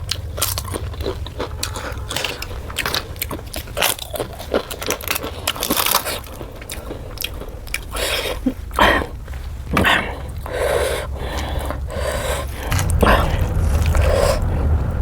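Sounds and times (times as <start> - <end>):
crisp crunching bites and chewing: 0.0 - 10.5.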